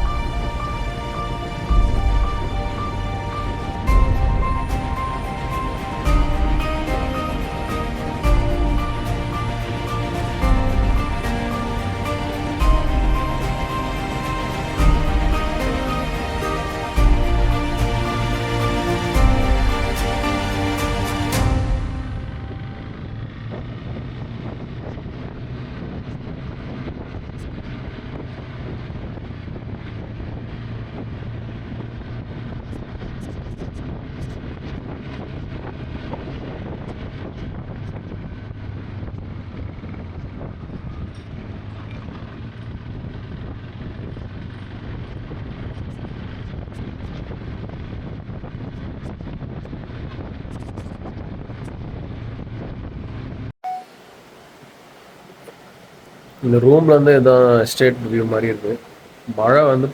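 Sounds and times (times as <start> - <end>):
wind rushing over microphone: 0.0 - 19.9, 21.4 - 53.5
motorcycle engine running: 1.6 - 15.7, 21.4 - 53.5.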